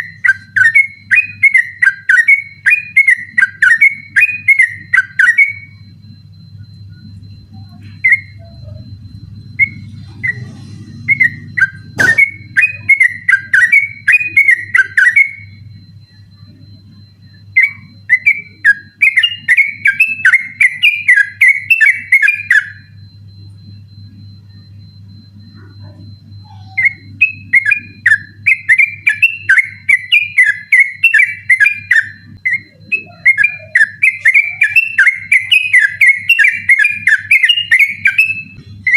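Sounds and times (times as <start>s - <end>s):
bulbul singing chattering song: 0.0s - 38.9s
low steady hum: 0.0s - 38.9s.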